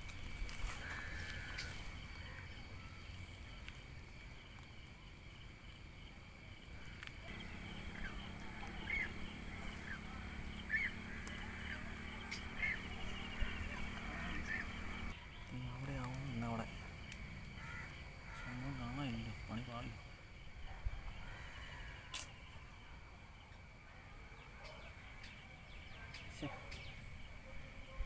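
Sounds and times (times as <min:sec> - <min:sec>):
bird chirping: 0:06.8 - 0:17.3, 0:24.3 - 0:27.4.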